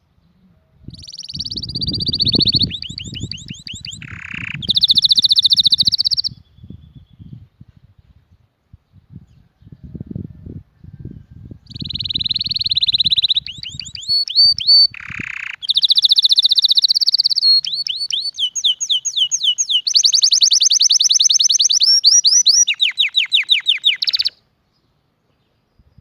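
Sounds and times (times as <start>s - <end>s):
canary singing: 0.9s - 6.5s, 11.7s - 24.4s.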